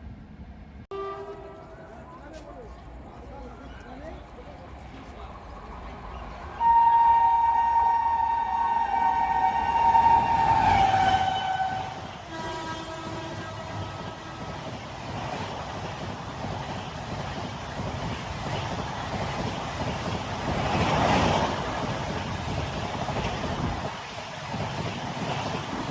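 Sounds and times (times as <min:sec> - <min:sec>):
passing train rumble: 0:00.0 - 0:25.9
train horn blast: 0:00.9 - 0:02.0, 0:06.6 - 0:14.6.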